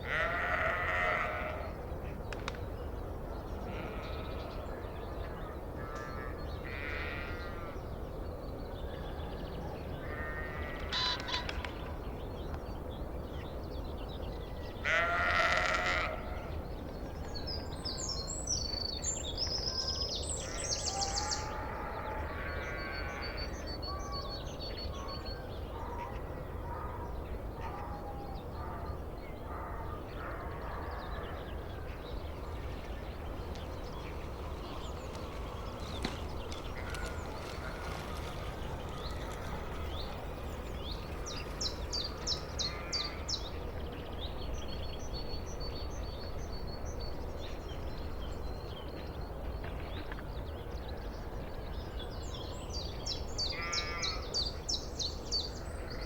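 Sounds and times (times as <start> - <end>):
sheep bleating: 0.1 - 1.7, 14.8 - 16.2
birds chirping: 29.5 - 56.0.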